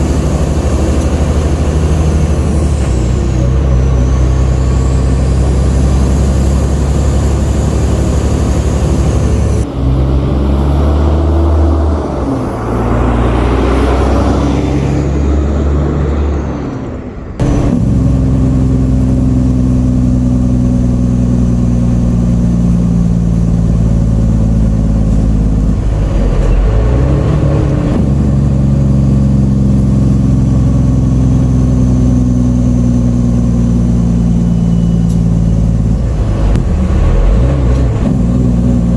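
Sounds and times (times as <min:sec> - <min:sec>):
truck diesel engine under load: 0:00.0 - 0:38.9.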